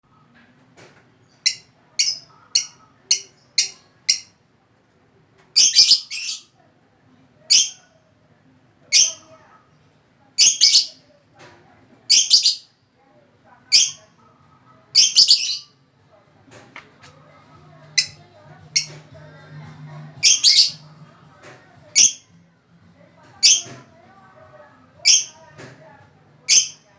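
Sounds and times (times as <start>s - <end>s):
lovebird chirping: 1.3s - 4.3s, 5.6s - 6.5s, 15.0s - 15.7s, 18.0s - 19.0s, 20.2s - 20.8s, 25.0s - 25.4s, 26.5s - 26.9s.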